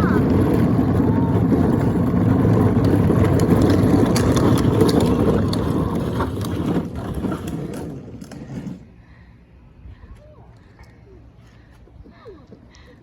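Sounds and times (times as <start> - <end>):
loud low rumbling noise: 0.0 - 8.1.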